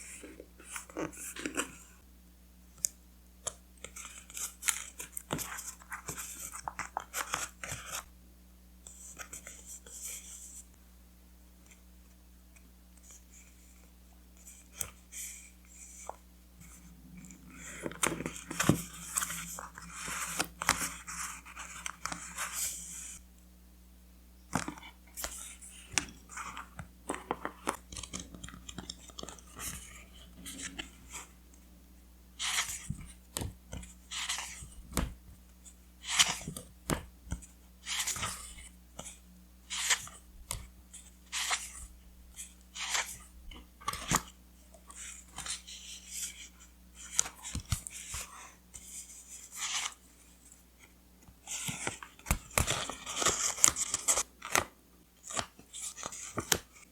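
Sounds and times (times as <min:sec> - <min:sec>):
paper rustling and crinkling: 0:51.4 - 0:56.9.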